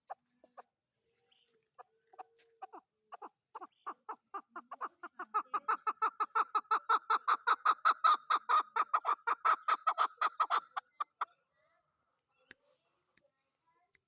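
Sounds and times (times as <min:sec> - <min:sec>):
partridge calling: 0:02.2 - 0:11.3.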